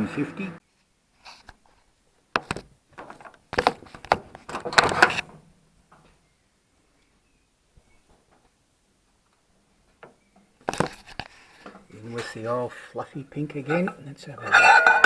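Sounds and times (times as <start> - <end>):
sharp knocks and clunks: 2.4 - 5.4
quiet handling noise: 2.4 - 6.2, 8.1 - 12.3.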